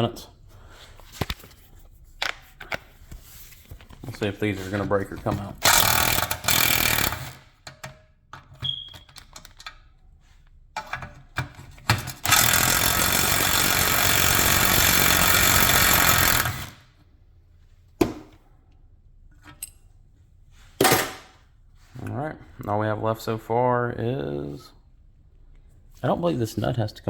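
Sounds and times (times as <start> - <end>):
impact wrench hammering: 5.6 - 7.8, 12.0 - 16.8.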